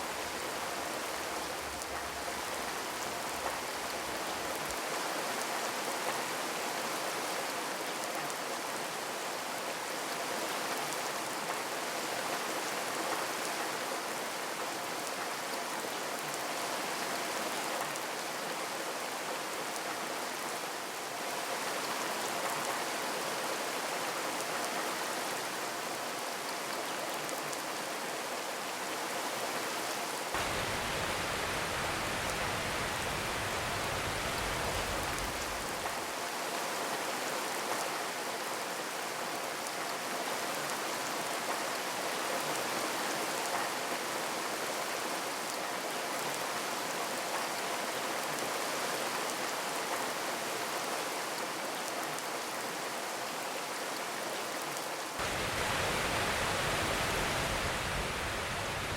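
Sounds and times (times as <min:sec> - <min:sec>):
steady rain: 0:00.0 - 0:58.9.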